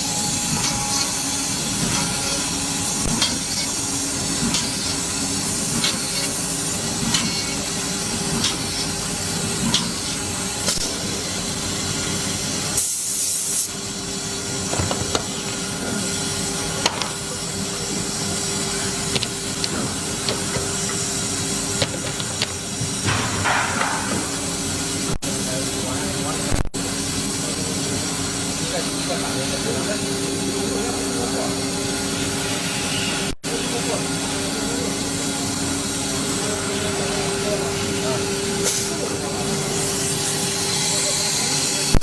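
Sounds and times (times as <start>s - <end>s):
compressed air hiss: 12.7s - 13.8s
woodworking machinery humming: 13.8s - 26.0s, 26.8s - 42.0s.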